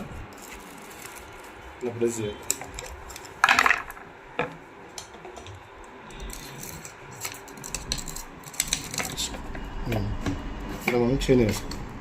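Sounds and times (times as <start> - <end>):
small metal parts clicking: 6.1 - 9.3.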